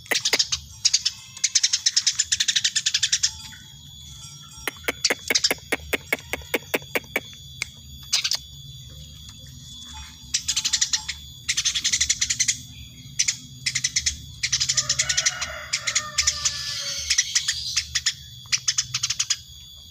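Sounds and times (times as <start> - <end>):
sparrow chirping: 0.0 - 3.8, 4.6 - 7.3, 10.3 - 19.5.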